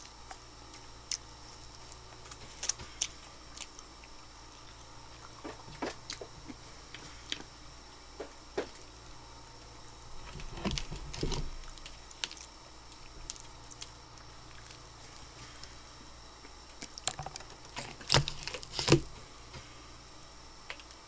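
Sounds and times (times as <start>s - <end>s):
chewing: 1.1s - 7.6s, 10.3s - 15.7s.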